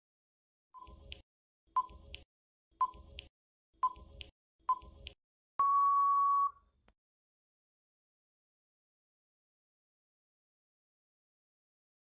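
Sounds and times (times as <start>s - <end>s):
countdown timer beeps: 3.8s - 6.5s
long timer beep: 5.6s - 6.6s.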